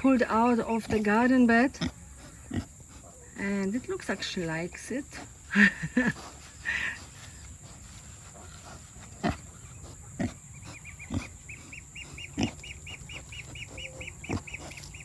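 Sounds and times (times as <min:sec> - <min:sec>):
pig chewing and grunting: 0:05.1 - 0:15.0.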